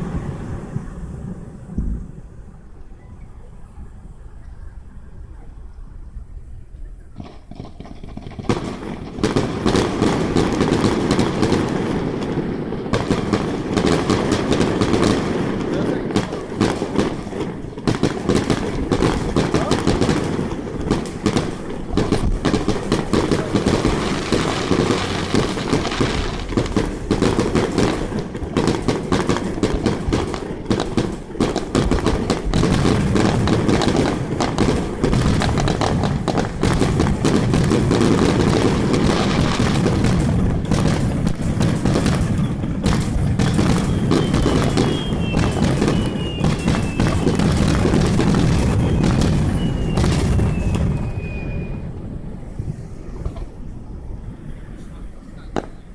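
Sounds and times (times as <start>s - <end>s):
fireworks bangs and crackling: 0.0s - 5.6s, 7.1s - 55.9s
deep rumble of shell bursts: 7.2s - 51.8s
falling firework whistle: 40.9s - 53.8s.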